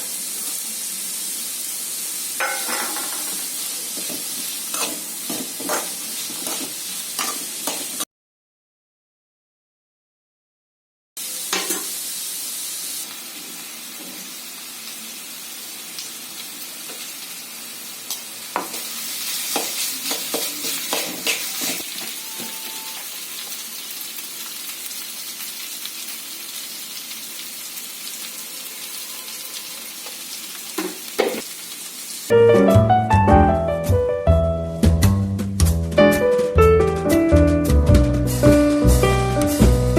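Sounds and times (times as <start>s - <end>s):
food sizzling in oil: 0.0s - 8.1s, 11.2s - 32.4s
spatula scraping pan: 4.0s - 8.0s, 18.6s - 23.0s.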